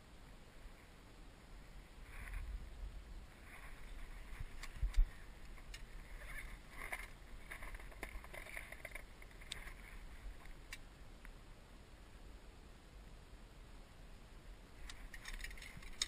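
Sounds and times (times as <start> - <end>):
soft hiss: 0.0 - 16.0
fishing gear clicking and knocking: 6.5 - 9.8, 14.9 - 16.0.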